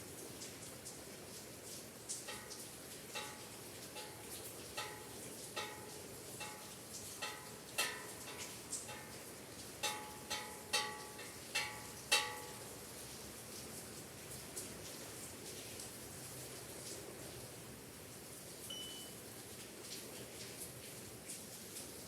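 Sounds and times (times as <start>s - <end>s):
soft steady hiss of rain: 0.0s - 22.0s
small bells ringing: 9.8s - 12.7s.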